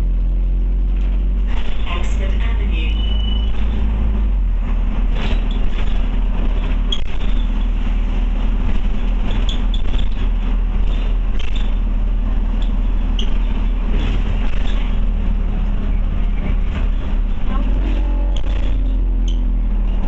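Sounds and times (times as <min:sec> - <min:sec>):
bus engine drone: 0:00.0 - 0:20.0
road noise: 0:00.0 - 0:20.0.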